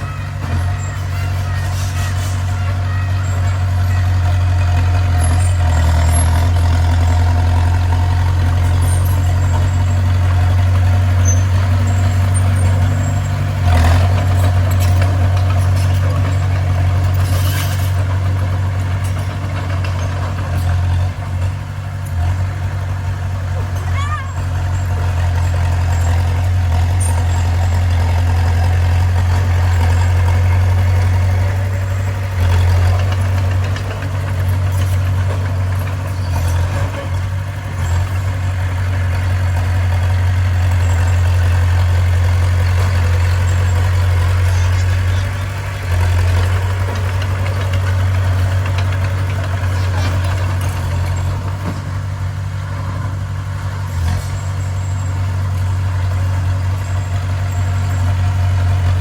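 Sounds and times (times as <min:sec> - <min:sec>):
heavy diesel engine drone: 0:00.0 - 0:59.0.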